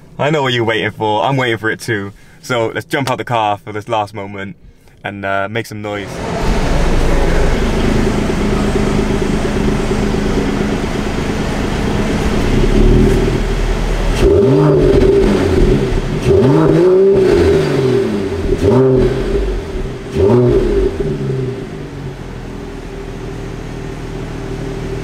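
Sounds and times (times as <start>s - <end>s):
car engine revving: 6.0s - 25.0s.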